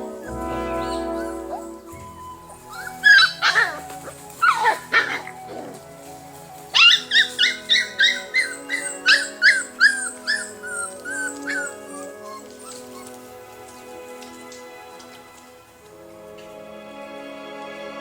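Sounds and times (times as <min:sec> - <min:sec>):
background music: 0:00.0 - 0:18.0
animal yelping calls: 0:00.1 - 0:05.9, 0:06.7 - 0:13.3.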